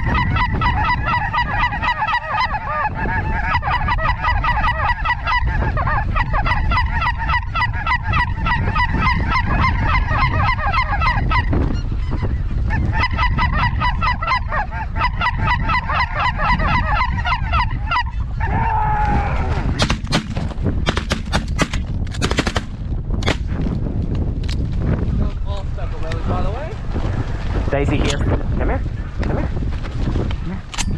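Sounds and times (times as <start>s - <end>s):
geese calling: 0.0s - 18.9s
wind rumble on microphone: 0.0s - 30.9s
shotgun shots: 19.8s - 23.5s.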